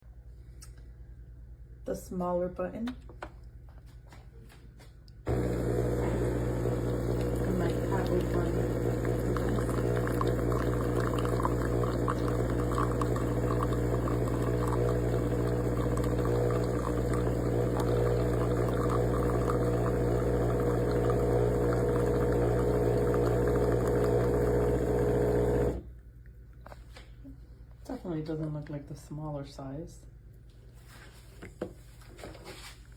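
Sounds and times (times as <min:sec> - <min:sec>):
coffee pouring into cup: 0:05.3 - 0:25.8
espresso machine pump humming: 0:05.3 - 0:25.9.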